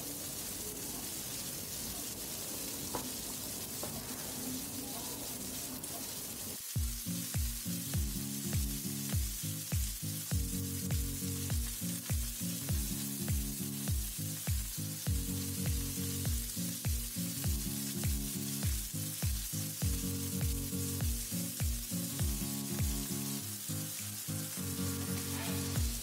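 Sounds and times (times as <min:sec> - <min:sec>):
prawns sizzling in oil: 0:00.0 - 0:26.0
background music with drum beat: 0:06.6 - 0:26.0.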